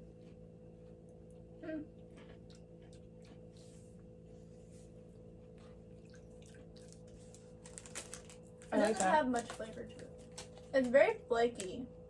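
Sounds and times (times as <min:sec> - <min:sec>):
low room hum: 0:00.0 - 0:12.0
person chewing crunchy wafer: 0:02.0 - 0:03.8, 0:05.4 - 0:09.6.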